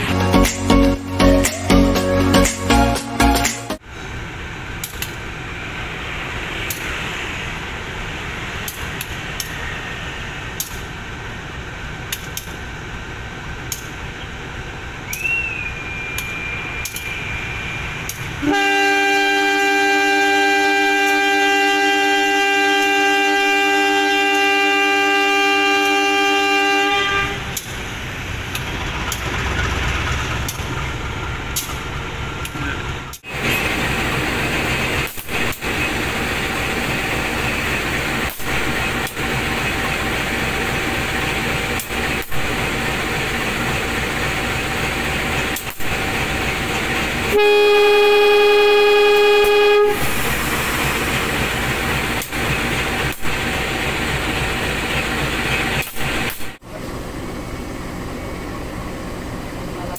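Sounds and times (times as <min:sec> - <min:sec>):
train rumbling: 0:00.0 - 0:59.9
locomotive horn blast: 0:15.1 - 0:27.6, 0:47.2 - 0:50.7.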